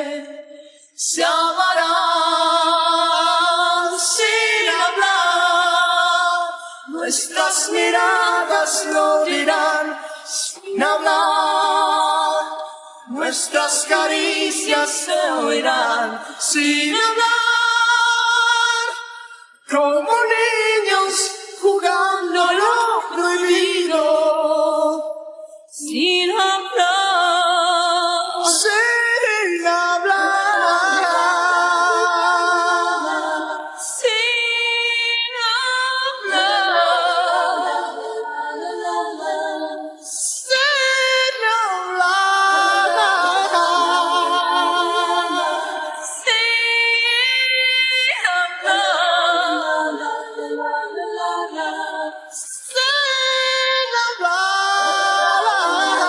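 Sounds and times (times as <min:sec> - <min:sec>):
person singing with vibrato: 0:00.0 - 0:56.0
singer breaths: 0:00.4 - 0:01.0, 0:12.6 - 0:13.1.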